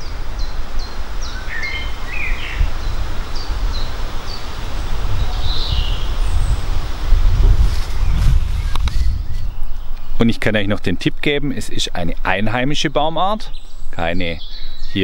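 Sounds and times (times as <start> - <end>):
wind rumble on microphone: 0.0 - 10.2
lower bird calls: 0.0 - 10.5, 11.8 - 15.0
small birds chirping: 0.0 - 15.0.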